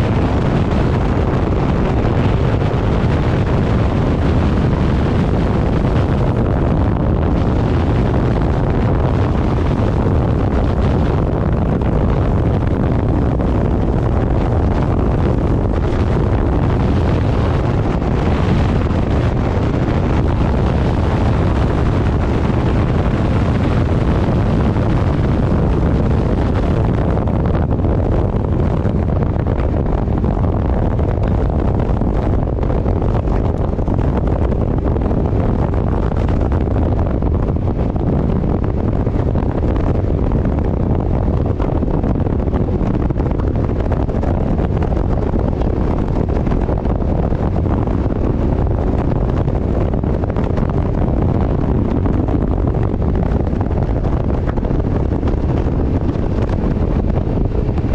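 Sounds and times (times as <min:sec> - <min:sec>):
road noise: 0:00.0 - 0:57.9
wind buffeting microphone: 0:00.0 - 0:57.9.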